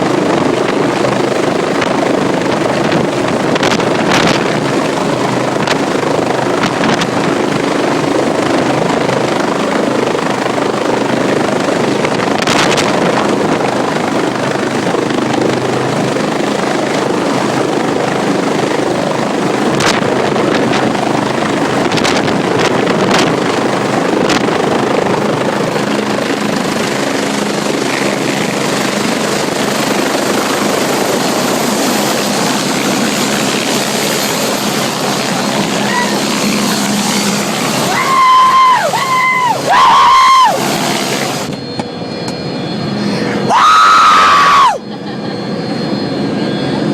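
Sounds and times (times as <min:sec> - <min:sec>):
helicopter rotor and turbine: 0:00.0 - 0:46.9
thin high whine: 0:34.1 - 0:46.9.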